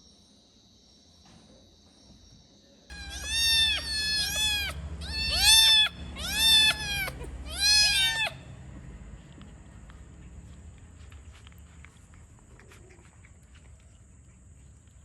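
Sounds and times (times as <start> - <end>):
cat meowing: 2.9 - 8.5.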